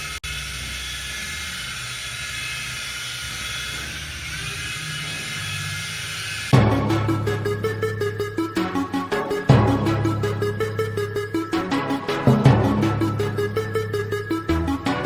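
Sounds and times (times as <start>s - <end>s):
music: 6.5s - 15.0s.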